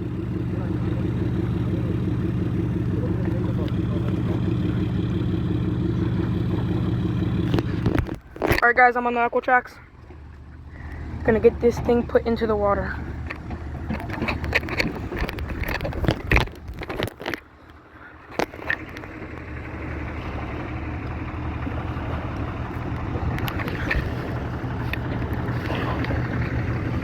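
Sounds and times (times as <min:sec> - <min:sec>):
engine running at low speed: 0:00.0 - 0:27.0
clanks and knocks: 0:13.0 - 0:17.4.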